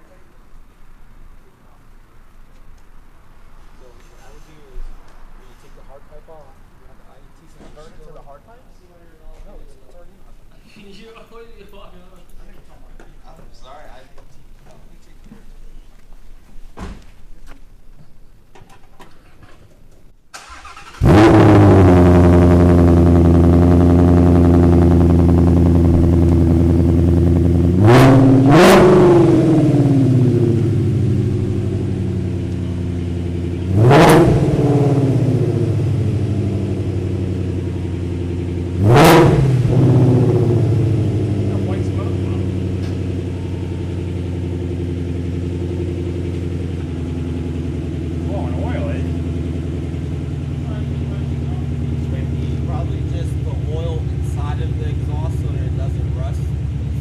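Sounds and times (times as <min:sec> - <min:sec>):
car engine starting and idling: 0:20.3 - 0:57.0
engine throttle blips: 0:20.4 - 0:57.0.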